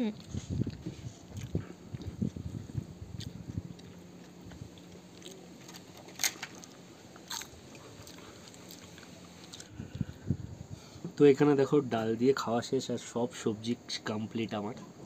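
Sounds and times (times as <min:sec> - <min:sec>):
person chewing: 0:00.2 - 0:06.0, 0:06.6 - 0:10.0.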